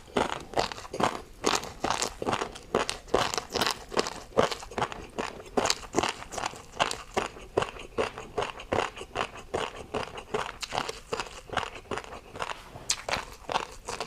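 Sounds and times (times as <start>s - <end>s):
crunchy chewing: 0.0s - 14.0s.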